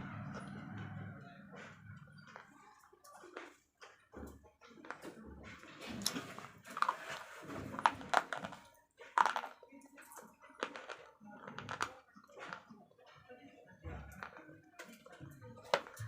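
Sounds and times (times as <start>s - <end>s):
slate pencils being chewed: 4.6s - 13.2s.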